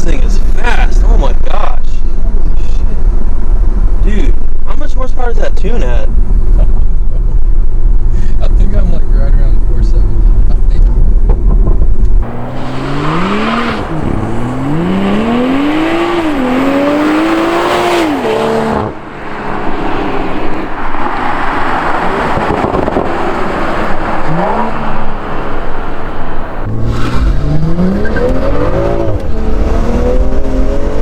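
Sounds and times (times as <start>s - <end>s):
road noise: 0.0s - 31.0s
car engine accelerating: 9.5s - 31.0s.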